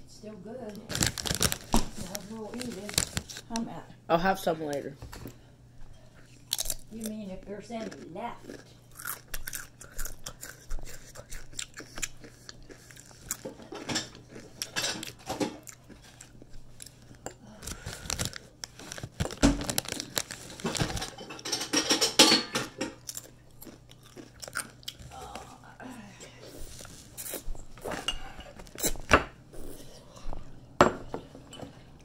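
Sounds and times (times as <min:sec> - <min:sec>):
crunching and chewing chips: 0:00.7 - 0:03.6, 0:06.2 - 0:22.2, 0:22.8 - 0:25.6, 0:26.6 - 0:28.0, 0:28.6 - 0:29.1
foil chip bag crinkling: 0:00.7 - 0:03.6, 0:15.8 - 0:21.8.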